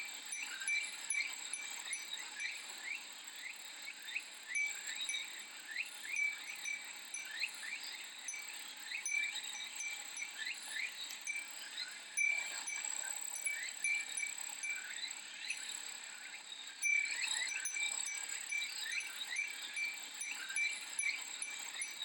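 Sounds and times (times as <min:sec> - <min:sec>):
glass wind chime tinkling: 0:00.0 - 0:22.0
cicadas chorus: 0:00.1 - 0:22.0.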